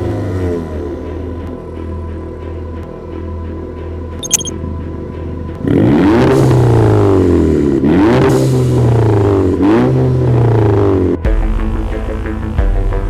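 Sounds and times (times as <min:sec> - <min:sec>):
short click: 0:04.2 - 0:04.5.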